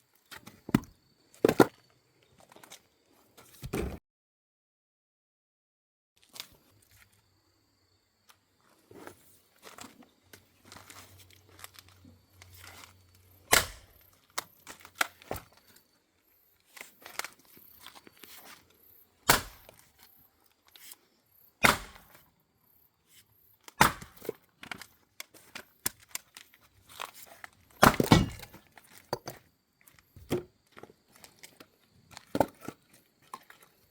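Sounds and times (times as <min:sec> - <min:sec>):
axe chopping firewood: 0:13.5 - 0:14.0, 0:19.2 - 0:19.8, 0:21.6 - 0:22.2, 0:23.7 - 0:24.4, 0:27.7 - 0:29.3.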